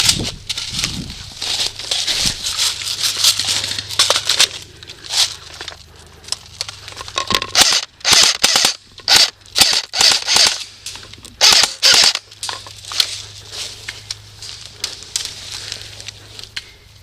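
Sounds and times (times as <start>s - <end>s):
airsoft guns firing: 7.5s - 10.6s, 11.4s - 12.3s.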